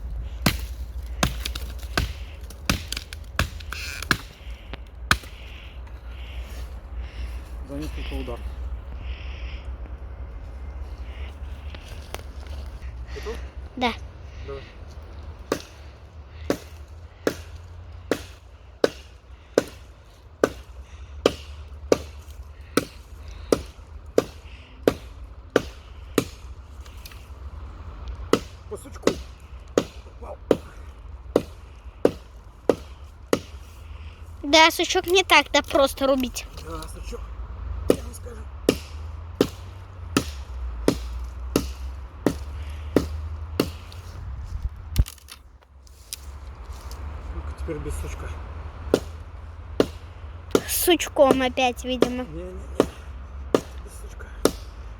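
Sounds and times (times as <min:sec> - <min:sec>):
low rumble: 0:00.0 - 0:03.4
hatchet chopping dry wood: 0:00.3 - 0:05.6, 0:15.4 - 0:27.3, 0:28.2 - 0:33.8, 0:37.8 - 0:44.0, 0:48.8 - 0:54.9.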